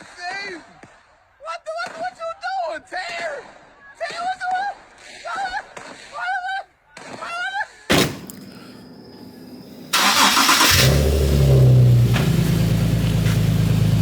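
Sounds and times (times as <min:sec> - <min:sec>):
sharp knock: 0:07.9 - 0:08.4
car engine cranking and idling: 0:08.1 - 0:14.0.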